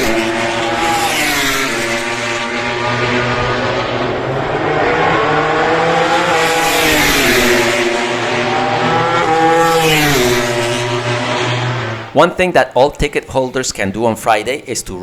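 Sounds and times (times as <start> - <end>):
racing motorcycles passing: 0.0 - 12.6.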